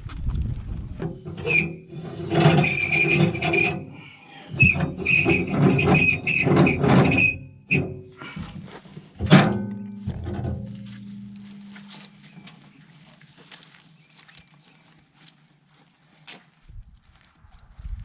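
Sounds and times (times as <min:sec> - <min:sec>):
metallic squeal: 0:01.1 - 0:08.1.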